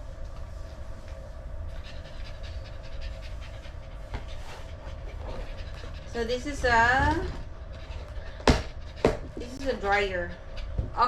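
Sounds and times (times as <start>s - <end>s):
small dog panting: 1.7s - 7.0s, 7.6s - 10.8s.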